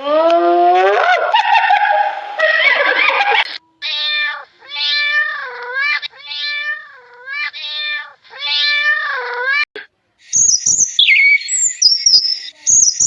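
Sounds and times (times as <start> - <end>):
cat meowing: 2.9 - 9.7.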